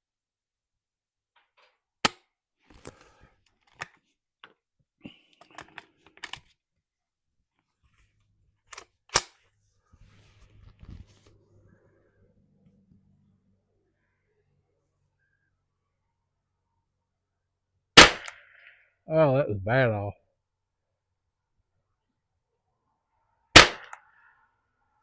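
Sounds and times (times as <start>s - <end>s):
rifle shots: 18.0s - 18.6s, 23.6s - 24.0s.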